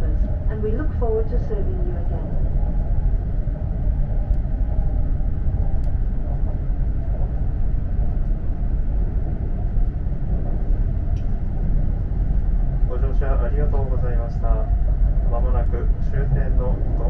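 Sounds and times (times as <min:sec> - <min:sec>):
train running low rumble: 0:00.0 - 0:17.0
faint clicks: 0:02.3 - 0:12.6.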